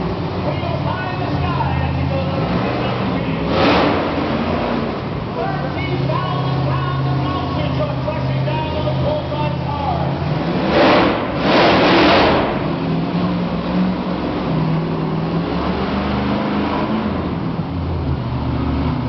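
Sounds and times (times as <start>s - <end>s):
truck engine revving: 0.0s - 19.0s
loud rushing bursts: 6.7s - 13.5s.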